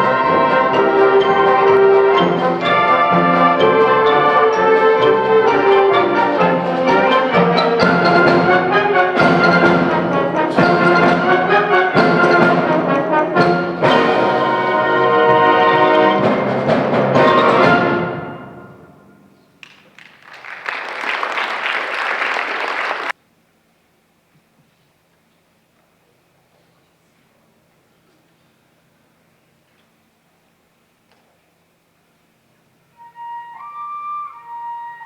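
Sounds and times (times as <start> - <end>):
concert band playing: 0.0 - 19.2
audience applauding: 19.6 - 23.2.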